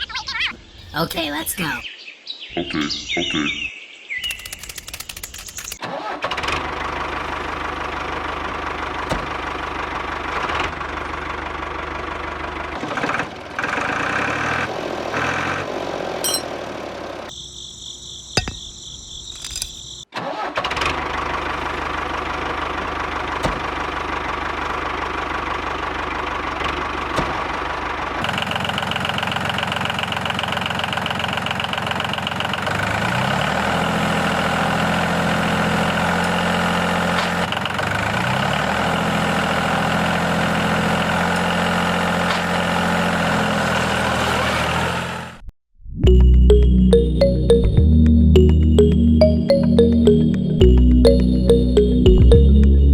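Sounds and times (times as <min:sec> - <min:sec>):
miniature truck engine idling: 0:05.9 - 0:17.3, 0:20.4 - 0:44.2.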